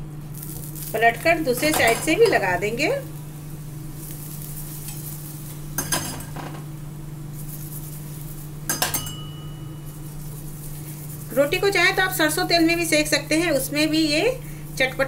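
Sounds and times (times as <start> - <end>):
flatbread sizzling in oil: 0.0 - 15.0
steel spoon scraping and clinking: 8.7 - 10.0.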